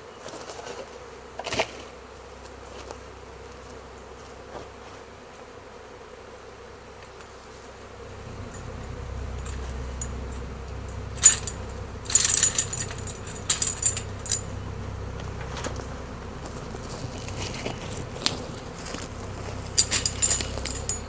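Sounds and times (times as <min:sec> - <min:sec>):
bee swarm buzzing: 0:00.9 - 0:21.0
sharp clicking rattles: 0:08.1 - 0:21.0.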